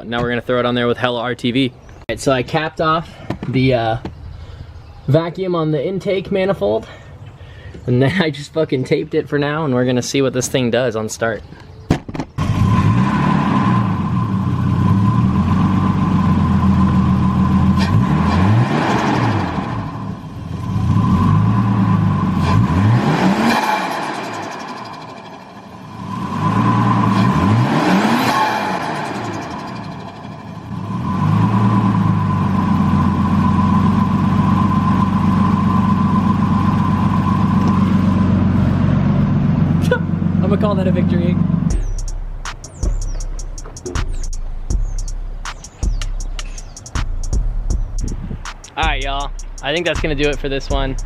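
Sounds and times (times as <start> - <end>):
car engine revving: 12.4 - 47.5.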